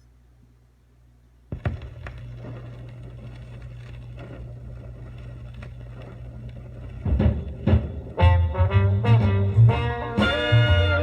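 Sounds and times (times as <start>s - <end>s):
steady low hum: 0.0s - 11.0s
stylus thump: 1.5s - 3.5s
vinyl surface crackle and clicks: 1.5s - 8.4s.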